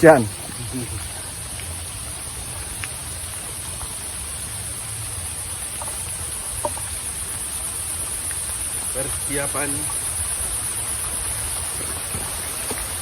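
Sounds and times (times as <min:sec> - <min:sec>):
rain falling through foliage: 0:00.0 - 0:13.0
faint ticks: 0:00.5 - 0:01.9, 0:02.6 - 0:04.0, 0:08.1 - 0:08.7.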